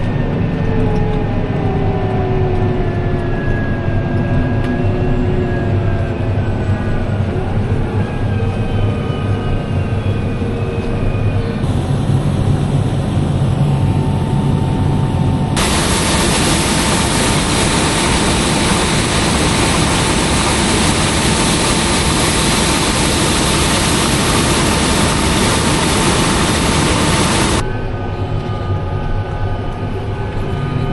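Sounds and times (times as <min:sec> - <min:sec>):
hissing machine noise with whine: 0:04.2 - 0:28.9
heavy machinery engine running: 0:11.6 - 0:27.6.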